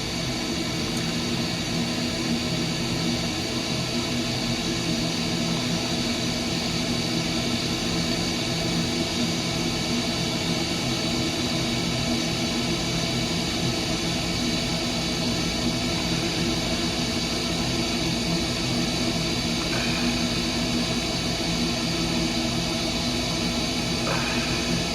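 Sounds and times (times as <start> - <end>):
machinery droning: 14.4 - 24.9.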